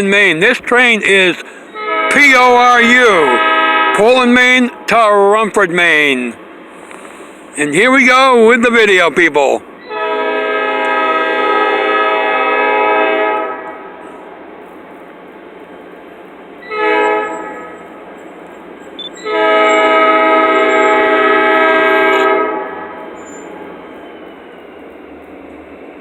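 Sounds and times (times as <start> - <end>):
train noise: 0.0 - 26.0
locomotive air horn blasts: 1.6 - 5.0, 9.8 - 14.2, 16.6 - 23.6.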